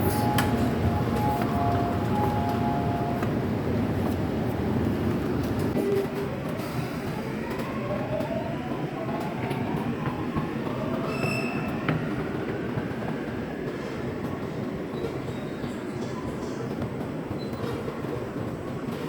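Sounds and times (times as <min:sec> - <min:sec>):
train wheels rumbling on track: 0:00.0 - 0:19.0
high squeal: 0:11.0 - 0:11.8.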